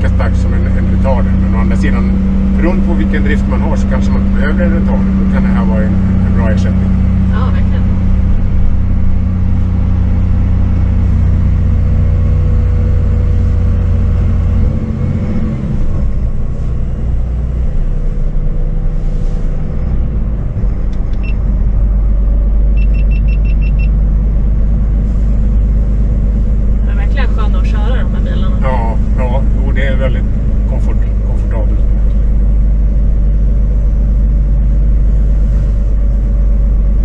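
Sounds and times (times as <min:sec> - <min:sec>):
truck diesel engine drone: 0:00.0 - 0:37.0
quick electronic beeps: 0:22.8 - 0:24.0.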